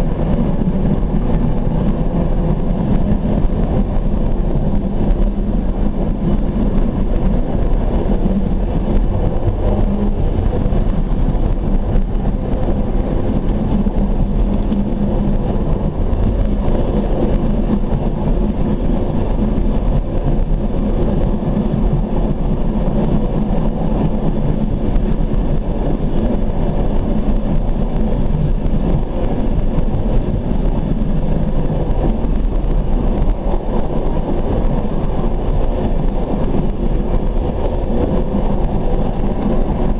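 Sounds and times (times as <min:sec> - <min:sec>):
train wheels rumbling on track: 0:00.0 - 0:39.9.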